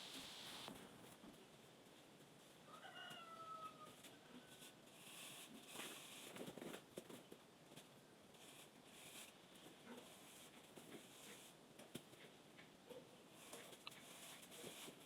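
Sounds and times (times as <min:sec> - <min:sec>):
rustling: 0:00.0 - 0:00.9.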